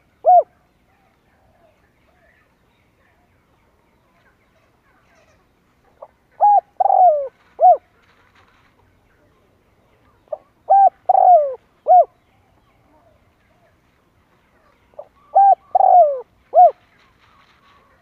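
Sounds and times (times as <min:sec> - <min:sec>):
dove cooing: 0:00.0 - 0:00.6, 0:06.0 - 0:07.9, 0:10.3 - 0:12.2, 0:14.9 - 0:18.0.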